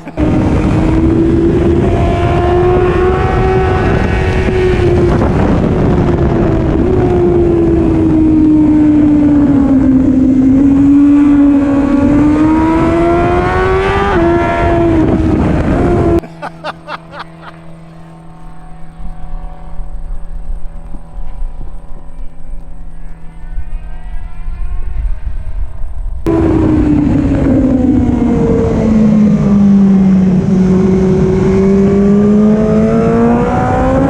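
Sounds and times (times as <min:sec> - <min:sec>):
heavy wind noise: 0:00.0 - 0:16.3
motorcycle engine at speed: 0:00.0 - 0:34.0.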